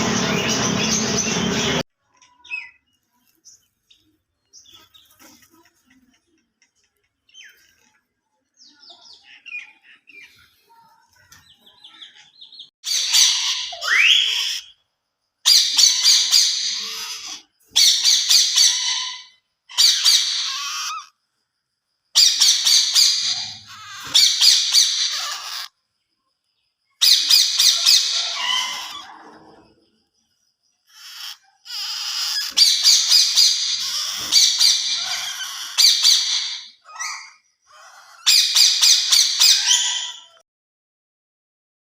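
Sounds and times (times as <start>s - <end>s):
parrot chirps: 11.9s - 21.2s, 22.2s - 25.8s, 27.0s - 29.3s, 30.8s - 40.4s
parrot screeching: 12.8s - 14.8s, 15.5s - 21.2s, 22.2s - 25.8s, 27.0s - 29.6s, 30.8s - 40.4s.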